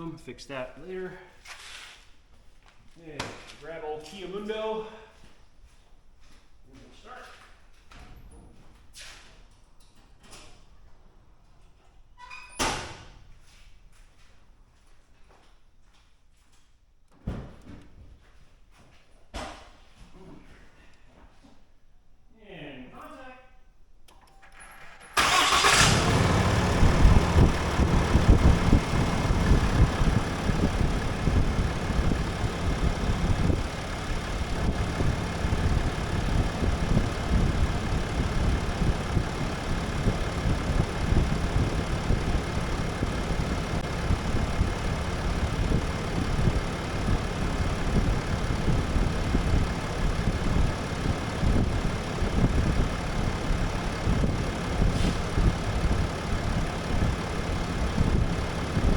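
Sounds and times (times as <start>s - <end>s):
diesel engine idling: 25.2s - 58.9s.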